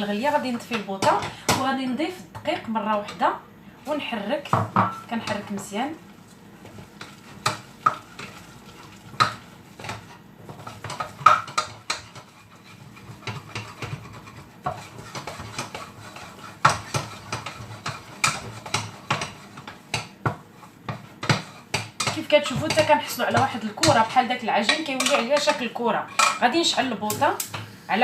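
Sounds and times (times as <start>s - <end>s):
utensil scraping and knocking pan: 6.6s - 26.8s.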